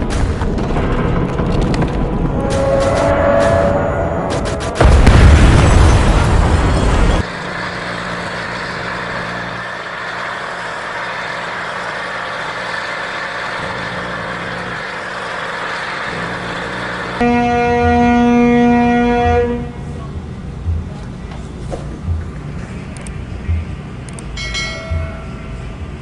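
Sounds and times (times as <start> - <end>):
road vehicle noise: 0.0 - 26.0
vehicle horn blaring: 2.4 - 4.3, 17.2 - 20.0.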